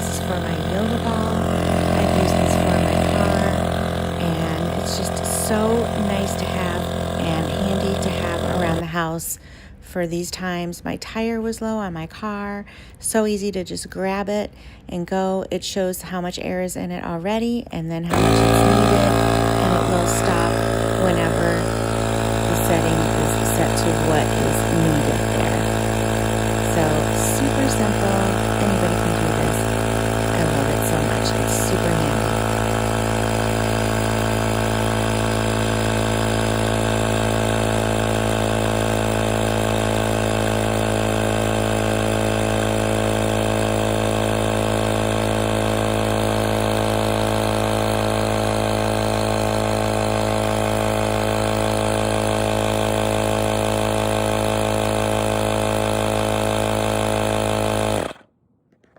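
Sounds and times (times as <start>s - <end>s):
tire inflator compressor running: 0.0s - 9.8s, 18.0s - 58.9s.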